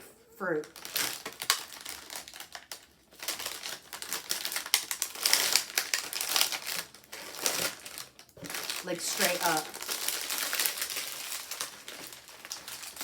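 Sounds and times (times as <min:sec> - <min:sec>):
plastic packaging crinkling: 0:00.6 - 0:13.0.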